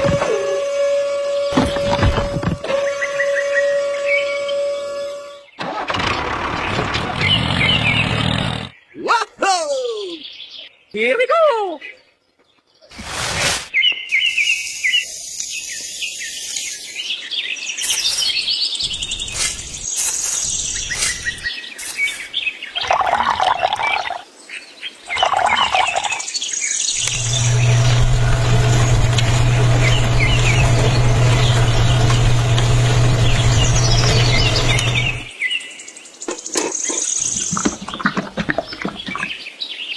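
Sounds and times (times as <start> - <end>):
small birds chirping: 7.2 - 39.9
steady low hum: 27.1 - 35.3.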